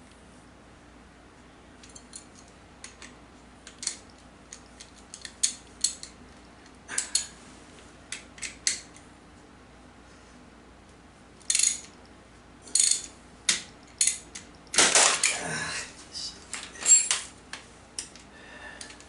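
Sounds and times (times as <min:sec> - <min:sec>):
metal tools clinking on metal: 0:12.7 - 0:13.1, 0:16.6 - 0:17.3.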